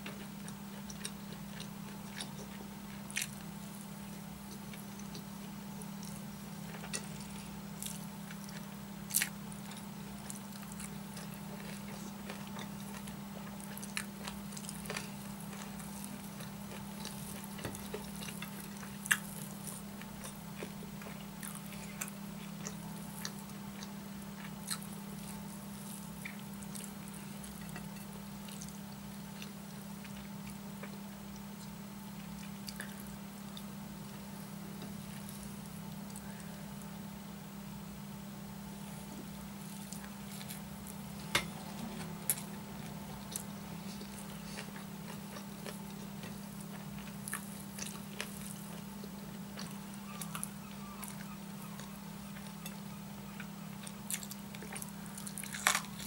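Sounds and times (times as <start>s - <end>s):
steady low hum: 0.0s - 56.0s
chewing mouth sounds: 29.4s - 33.7s, 39.7s - 56.0s.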